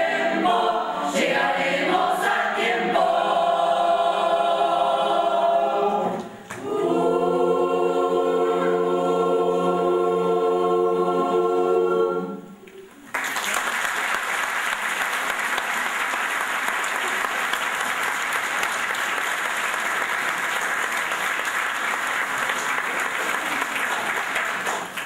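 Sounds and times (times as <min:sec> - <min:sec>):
choir singing: 0:00.0 - 0:12.8.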